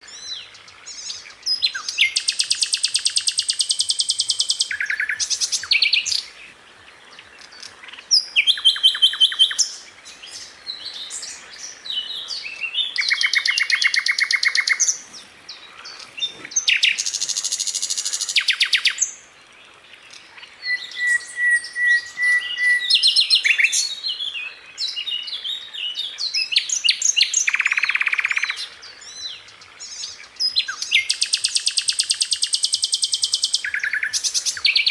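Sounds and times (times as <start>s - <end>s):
sharp high bird chirps: 12.5s - 15.0s.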